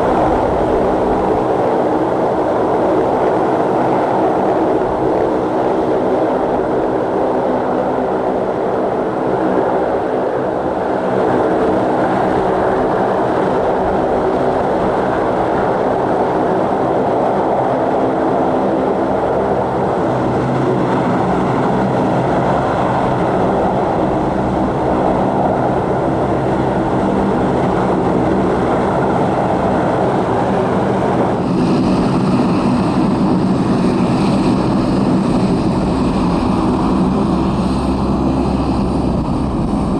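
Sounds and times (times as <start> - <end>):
aircraft engines running: 0.0 - 39.9.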